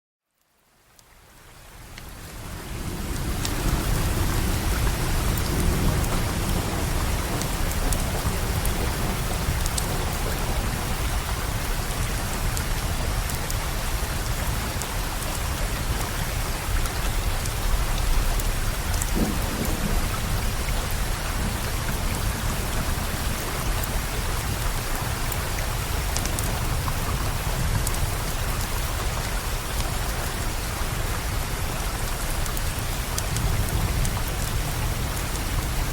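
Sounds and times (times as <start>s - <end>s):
heavy rain: 0.4s - 35.9s
rolling thunder: 19.0s - 23.4s.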